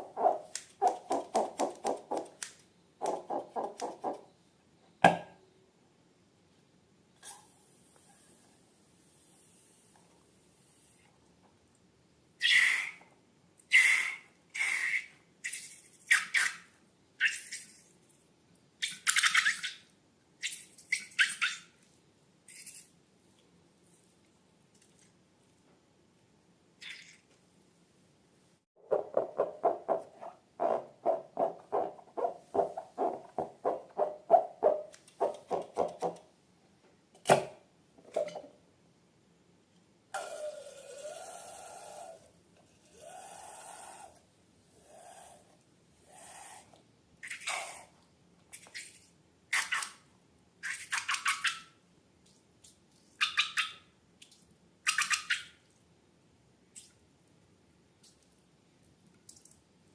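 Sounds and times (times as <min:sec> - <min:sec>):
rubber balloon squeaking: 0:28.8 - 0:35.9.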